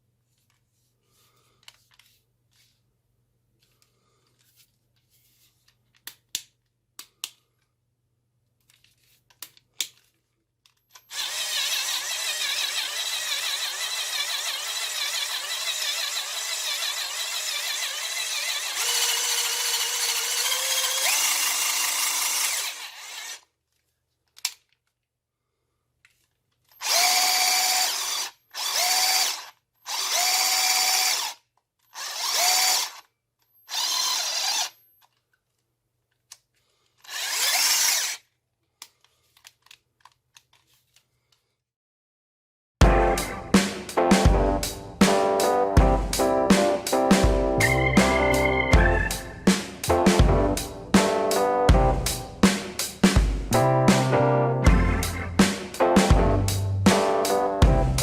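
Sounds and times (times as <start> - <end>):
cordless drill motor running: 11.0 - 23.5, 26.8 - 34.8, 37.0 - 38.2.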